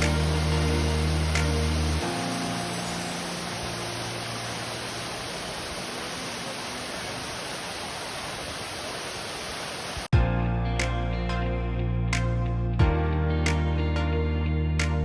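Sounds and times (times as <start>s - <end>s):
background music: 0.0s - 4.8s, 10.1s - 15.0s
steady hiss: 0.0s - 10.1s.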